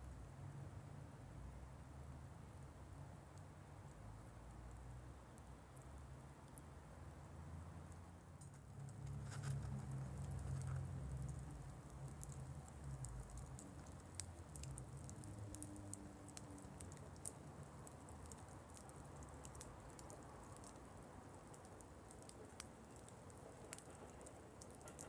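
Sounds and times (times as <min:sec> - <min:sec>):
wood fire crackling and popping: 0:08.4 - 0:25.0.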